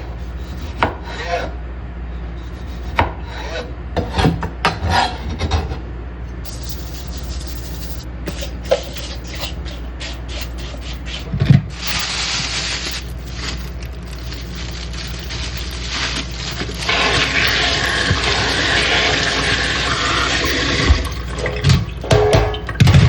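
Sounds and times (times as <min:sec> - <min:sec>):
low hum: 0:05.3 - 0:23.0.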